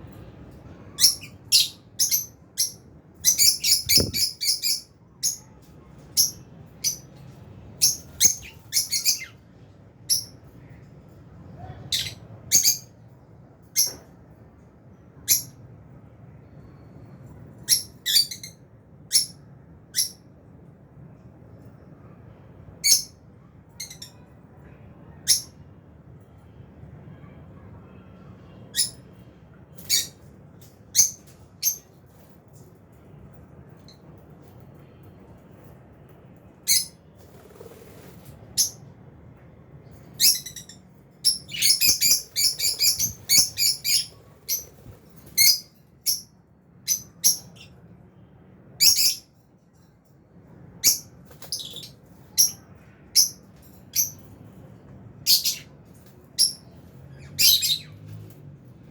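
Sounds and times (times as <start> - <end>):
lovebirds chirping: 0.9 - 5.6, 40.2 - 47.8.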